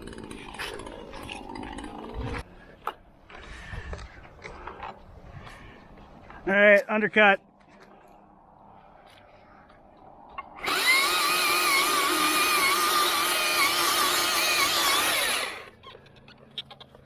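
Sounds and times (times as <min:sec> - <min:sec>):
chainsaw cutting wood: 0:00.0 - 0:02.4, 0:10.4 - 0:15.8.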